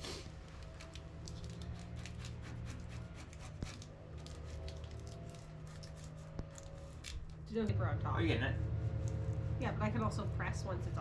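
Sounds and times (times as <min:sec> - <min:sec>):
steady low hum: 0:00.0 - 0:11.0
sticker paper crinkling: 0:00.4 - 0:07.4.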